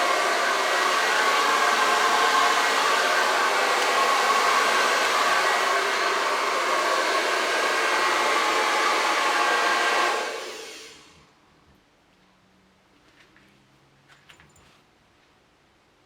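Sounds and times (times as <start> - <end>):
hair dryer blowing: 0.0 - 11.2.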